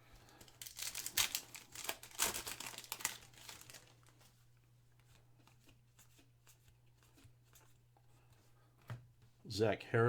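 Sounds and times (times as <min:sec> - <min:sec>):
trading cards rustling and clicking: 0:00.2 - 0:04.3.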